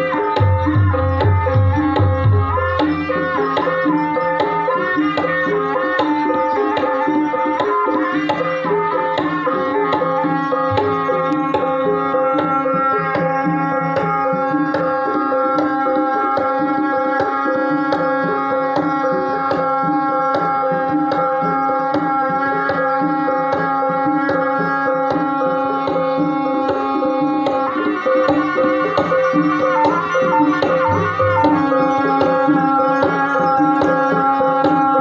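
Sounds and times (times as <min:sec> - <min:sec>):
long held tone: 0:24.8 - 0:35.0.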